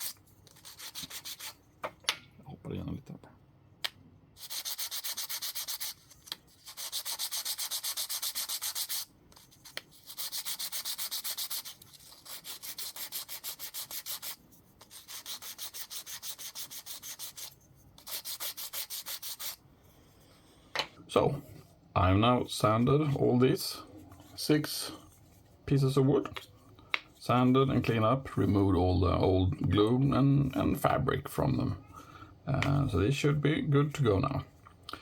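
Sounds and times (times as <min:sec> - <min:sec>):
sandpaper scraping wood: 0:00.0 - 0:01.6, 0:04.4 - 0:19.6.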